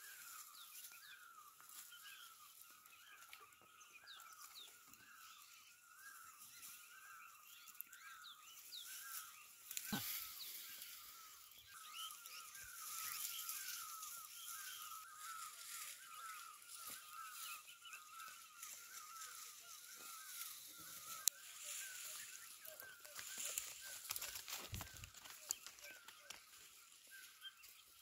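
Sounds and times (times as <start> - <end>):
small birds chirping: 0.0 - 28.0
whistled bird notes: 0.0 - 28.0
faint rustle: 8.6 - 27.9.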